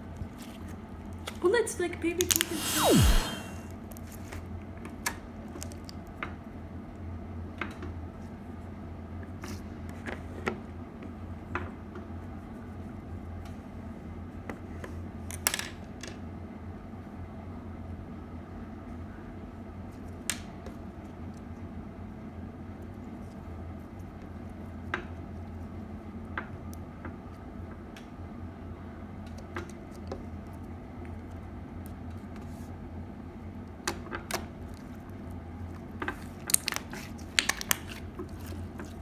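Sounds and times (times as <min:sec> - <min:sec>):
slime squished by hand: 0:02.2 - 0:03.6.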